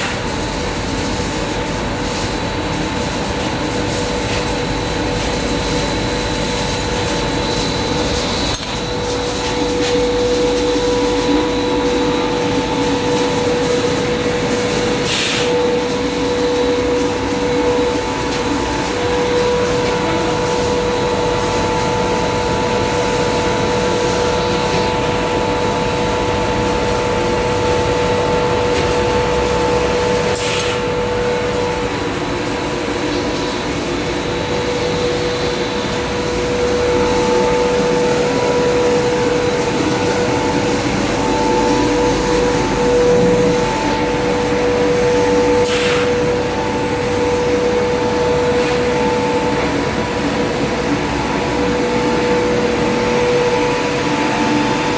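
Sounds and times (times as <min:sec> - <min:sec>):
industrial machinery humming: 0:00.0 - 0:54.9
brief hisses: 0:15.1 - 0:15.6, 0:45.7 - 0:46.1.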